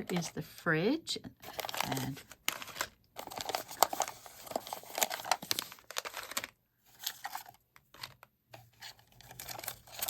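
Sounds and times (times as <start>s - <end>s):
plastic packaging crinkling and tearing: 1.4s - 8.2s, 8.8s - 10.0s.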